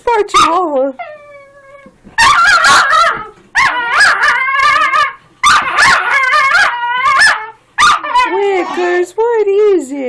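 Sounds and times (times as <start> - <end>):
dog barking and yipping: 0.3 - 0.6, 1.8 - 8.8.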